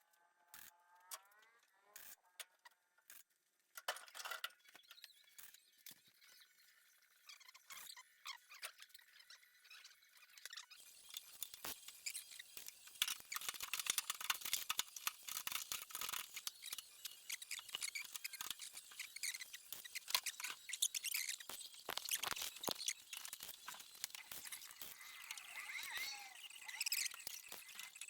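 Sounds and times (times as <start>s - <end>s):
welding arc crackling: 10.8s - 28.0s.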